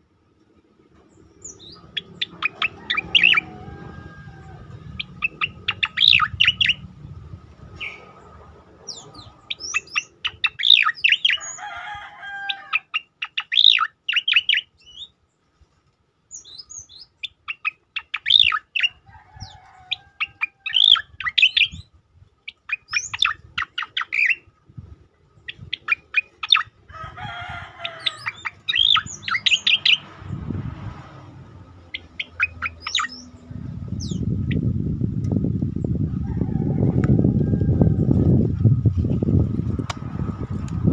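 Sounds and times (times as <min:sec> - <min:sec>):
low warbling bird phrase: 0:01.4 - 0:11.6, 0:27.5 - 0:35.0.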